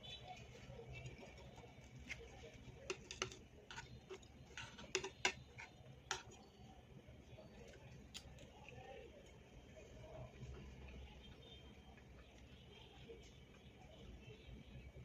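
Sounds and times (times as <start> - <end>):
chewing and mouth clicks: 7.6 - 8.8.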